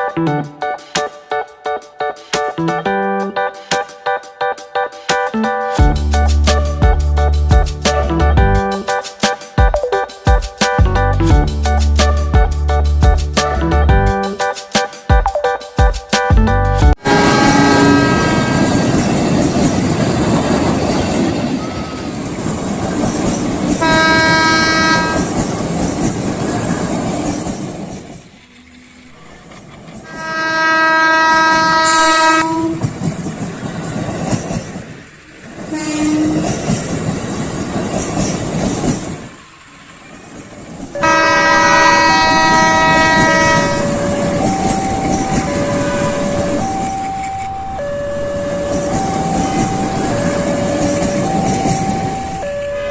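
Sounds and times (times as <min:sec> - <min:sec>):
train rumble and wheel clatter: 0:00.0 - 0:52.9
train horn blasts: 0:17.0 - 0:19.0, 0:23.8 - 0:25.4, 0:30.0 - 0:32.9, 0:35.7 - 0:36.5, 0:41.0 - 0:48.2
two-note warning tone: 0:41.0 - 0:52.9.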